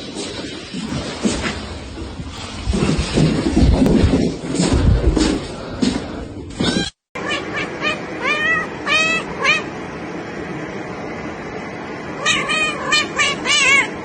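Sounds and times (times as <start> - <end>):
cat meowing: 6.6 - 9.7, 12.2 - 13.9.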